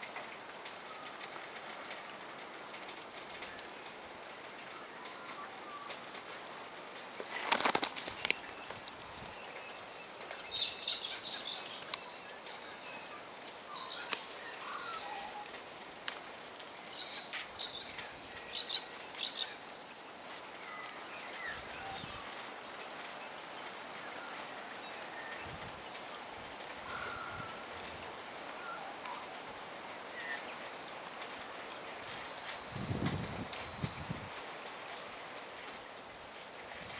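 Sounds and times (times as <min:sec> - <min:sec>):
wet snow pattering: 0:00.9 - 0:10.5.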